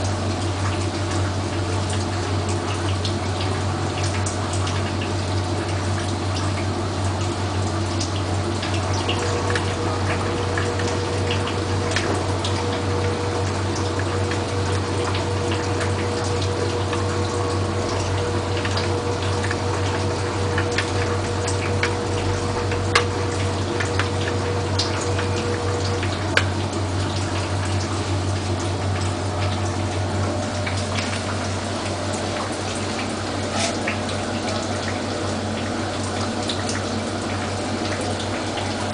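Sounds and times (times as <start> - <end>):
low pump hum: 0.0 - 38.9
water sloshing in washing machine: 0.0 - 38.9
thin steady whine: 8.8 - 27.5.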